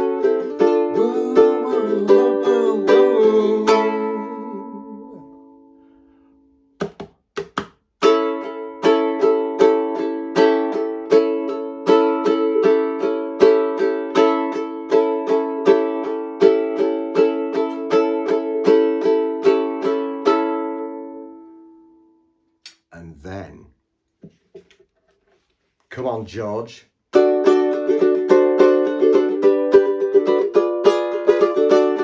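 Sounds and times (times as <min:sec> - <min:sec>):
ukulele strumming: 0:00.0 - 0:05.8, 0:06.8 - 0:21.7, 0:27.1 - 0:32.0
muted string chops: 0:06.8 - 0:07.8.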